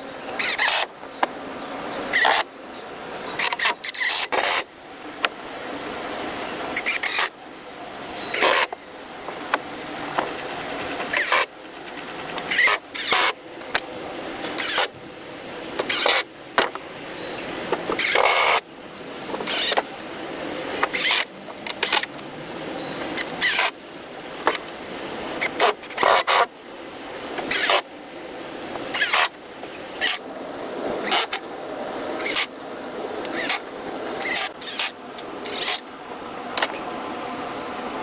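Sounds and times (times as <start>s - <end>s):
hand tool rasping wood: 0.4s - 0.9s, 2.1s - 2.5s, 3.4s - 4.7s, 6.8s - 7.4s, 8.3s - 8.8s, 11.0s - 11.5s, 12.4s - 13.4s, 14.5s - 15.0s, 15.8s - 16.3s, 17.8s - 18.6s, 19.3s - 19.8s, 20.8s - 22.1s, 23.0s - 23.8s, 25.4s - 26.5s, 27.4s - 27.9s, 28.9s - 29.4s, 30.0s - 30.3s, 31.0s - 31.4s, 32.2s - 32.5s, 33.3s - 35.9s.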